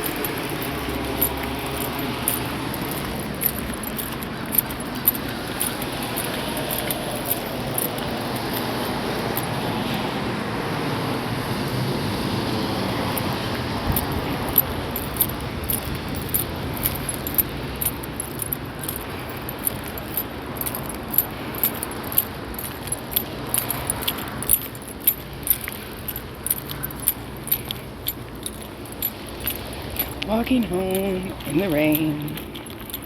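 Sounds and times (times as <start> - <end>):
passing traffic on wet street: 0.0 - 33.0.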